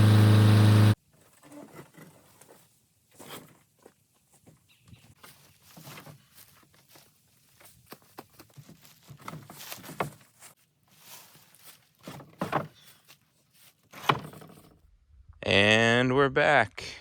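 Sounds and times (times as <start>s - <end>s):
footsteps: 3.8s - 13.9s
knocks and rustles: 7.7s - 10.5s, 12.0s - 14.8s.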